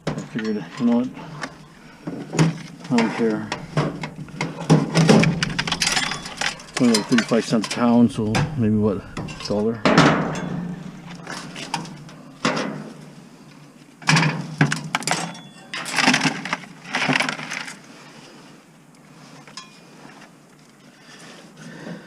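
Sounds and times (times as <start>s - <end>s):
metal parts clanking: 0.0s - 12.8s.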